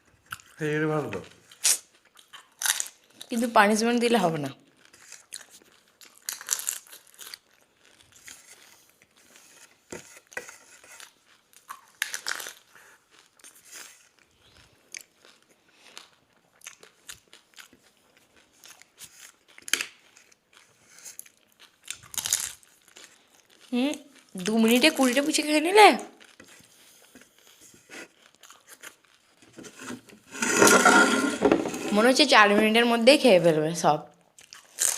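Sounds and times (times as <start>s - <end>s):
crunching and chewing: 0.0s - 0.6s, 1.2s - 3.3s, 4.6s - 24.5s, 26.1s - 30.5s, 34.2s - 34.9s.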